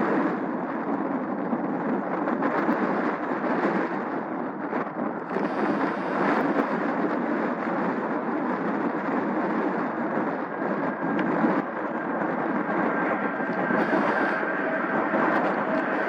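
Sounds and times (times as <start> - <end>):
jet engine rushing: 5.2 - 16.0
faint high whine: 8.2 - 16.0.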